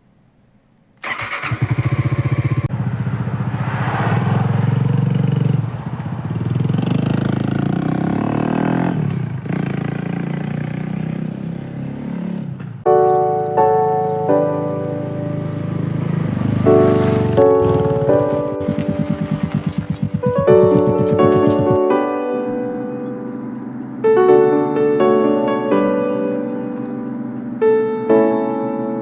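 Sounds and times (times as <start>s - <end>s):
motorcycle engine starting and revving: 1.0s - 12.9s, 14.7s - 21.8s
background music: 12.9s - 29.0s.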